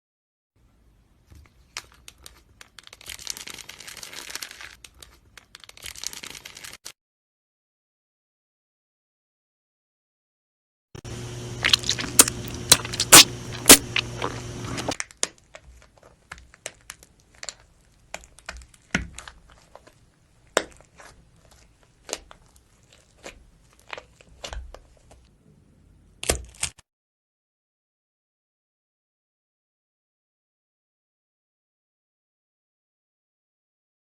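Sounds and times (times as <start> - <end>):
steady low hum: 11.0 - 15.0
slime sticky pops and crackles: 11.6 - 14.0.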